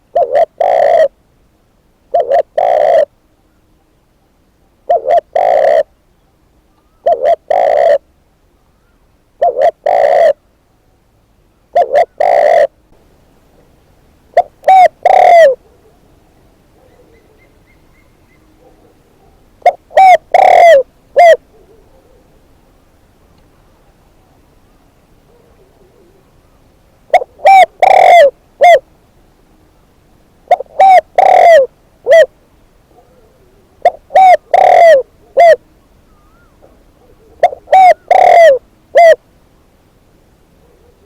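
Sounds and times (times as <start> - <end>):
dove cooing: 0.0 - 1.2, 2.1 - 3.2, 4.8 - 6.0, 6.8 - 8.1, 9.4 - 10.5, 11.7 - 12.8, 13.6 - 22.5, 25.2 - 28.9, 30.5 - 39.2, 40.5 - 41.0.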